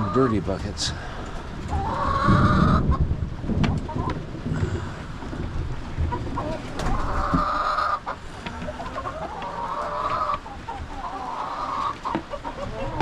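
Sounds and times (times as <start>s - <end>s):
hens long drawn-out calls: 0.0s - 3.0s, 3.8s - 13.0s
chickens clucking: 0.0s - 13.0s.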